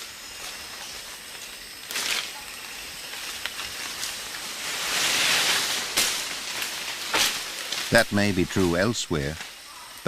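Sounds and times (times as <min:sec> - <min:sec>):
leaves and branches rustling: 0:00.0 - 0:10.0.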